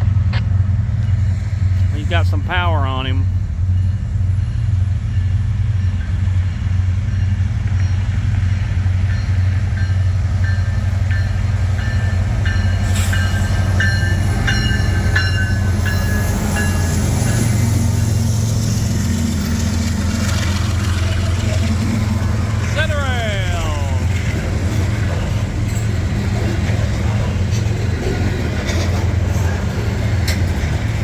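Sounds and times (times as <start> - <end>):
diesel locomotive rumble: 0.0 - 31.0
wheels squealing and clanking: 11.8 - 22.8, 24.0 - 31.0.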